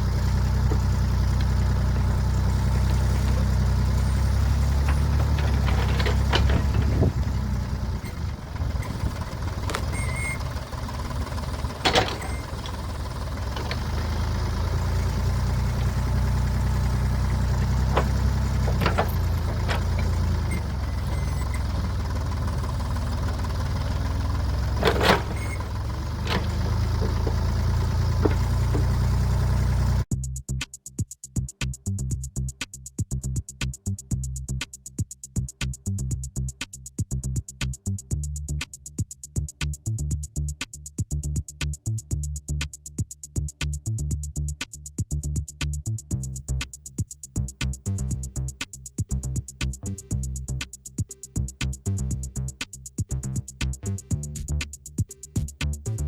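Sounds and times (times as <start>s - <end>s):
diesel engine rumbling: 0.0s - 30.1s, 47.4s - 50.7s, 51.3s - 56.0s
sharp metallic clanks: 0.3s - 30.0s.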